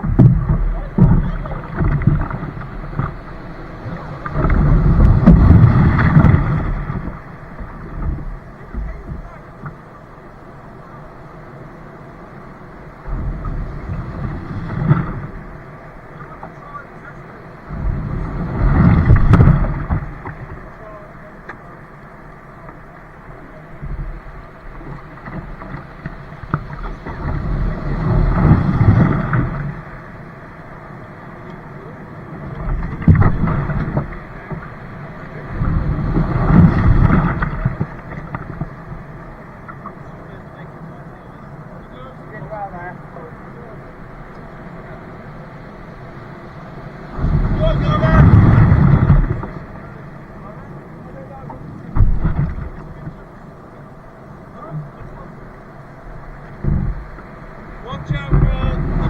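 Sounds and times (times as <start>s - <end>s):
water around a kayak: 0.0s - 59.0s
wind rumbling on microphone: 0.0s - 59.0s.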